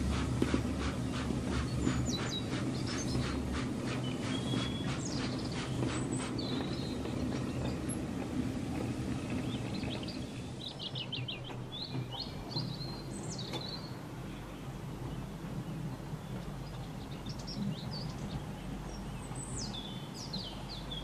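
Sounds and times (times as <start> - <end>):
steady low rumble: 0.0 - 11.9
small birds chirping and trilling: 1.0 - 8.2, 9.1 - 21.0.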